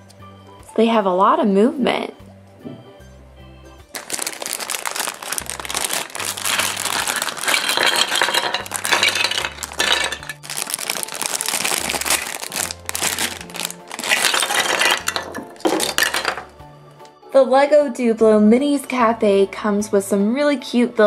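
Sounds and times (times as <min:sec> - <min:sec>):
plastic packaging crinkling: 0:03.9 - 0:16.4
plastic toy pieces clinking: 0:04.0 - 0:16.5.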